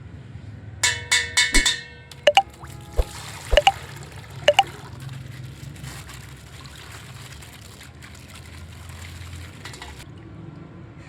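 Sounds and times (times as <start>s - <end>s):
water trickling from plastic bag: 3.0s - 10.2s.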